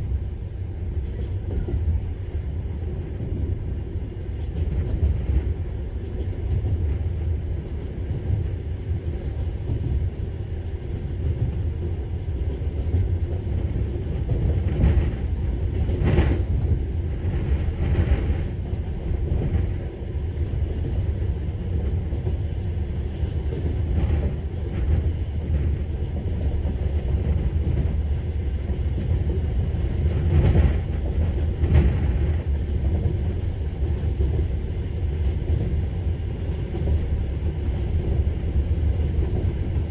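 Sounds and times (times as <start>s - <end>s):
train coaches rumbling on track: 0.0s - 39.9s.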